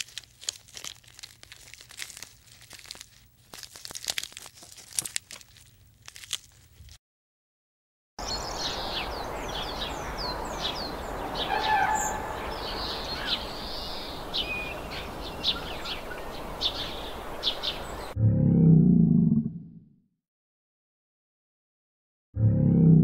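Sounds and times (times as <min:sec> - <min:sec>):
small birds chirping: 0:08.2 - 0:18.2
steady outdoor hiss: 0:08.2 - 0:18.2.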